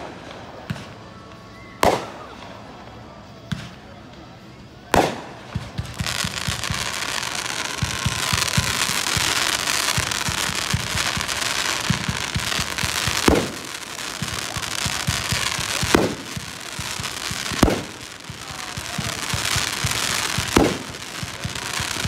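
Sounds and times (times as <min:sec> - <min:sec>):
rapid firework pops: 0:01.8 - 0:02.2, 0:03.5 - 0:03.8, 0:04.9 - 0:22.0
firework booms: 0:01.8 - 0:02.4, 0:04.9 - 0:22.0.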